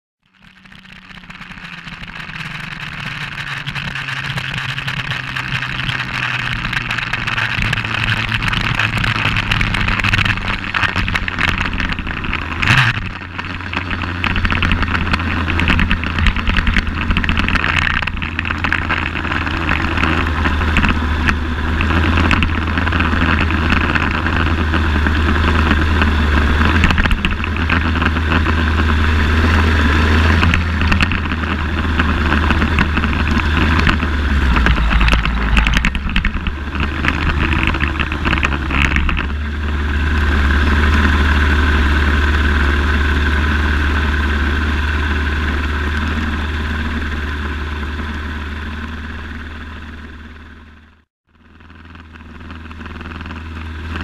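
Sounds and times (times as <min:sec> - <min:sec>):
motorcycle engine idling: 0:00.2 - 0:54.0
brief sharp sound: 0:33.4 - 0:37.9.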